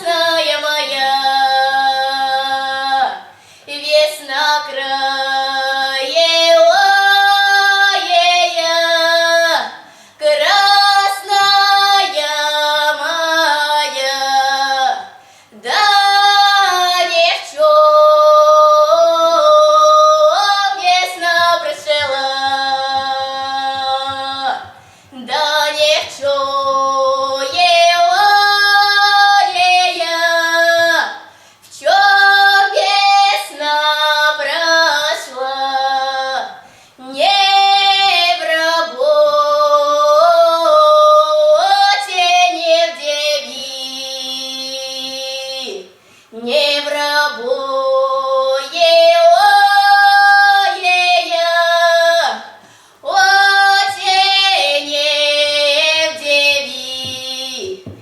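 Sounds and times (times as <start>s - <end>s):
girls singing folk song: 0.0s - 58.0s
singers breathing: 3.3s - 3.7s, 9.8s - 10.2s, 15.2s - 15.6s, 24.7s - 25.2s, 31.2s - 31.7s, 36.6s - 37.0s, 46.0s - 46.4s, 52.6s - 53.0s.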